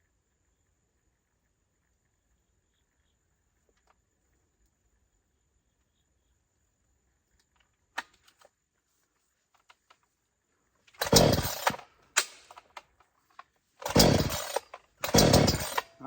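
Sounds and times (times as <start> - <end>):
chainsaw engine firing: 10.9 - 12.8, 13.8 - 16.0
recoil starter pulls: 10.9 - 12.9, 13.8 - 16.0.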